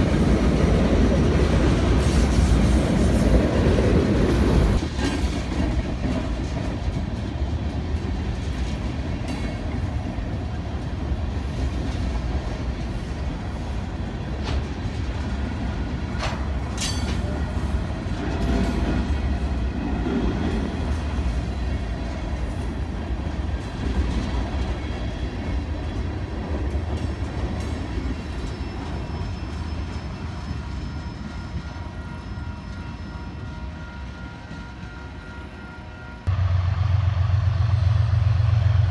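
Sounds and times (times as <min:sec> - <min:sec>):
freight train rumbling on rails: 0:00.0 - 0:38.9
high wheel squeals: 0:28.0 - 0:36.2.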